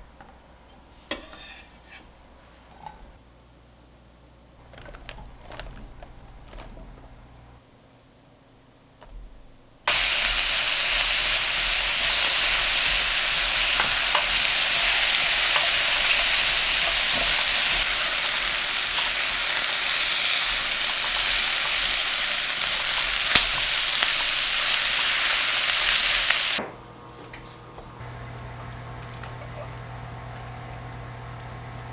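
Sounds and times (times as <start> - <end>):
food sizzling in a frying pan: 9.9 - 26.6.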